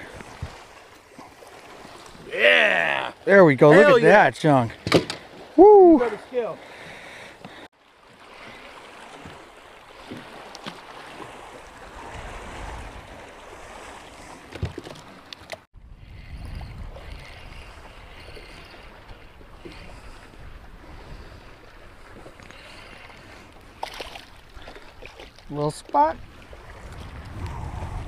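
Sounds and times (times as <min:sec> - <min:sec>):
lapping lake water: 0:00.0 - 0:28.0
wind buffeting microphone: 0:11.3 - 0:14.4, 0:15.8 - 0:22.4, 0:26.2 - 0:28.0.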